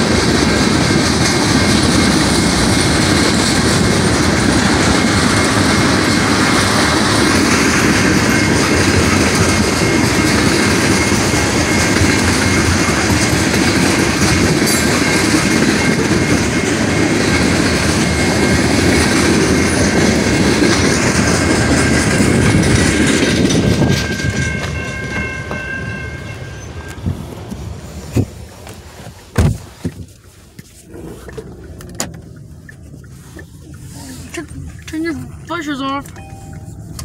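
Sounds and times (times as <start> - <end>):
freight train rolling past: 0.0 - 28.9.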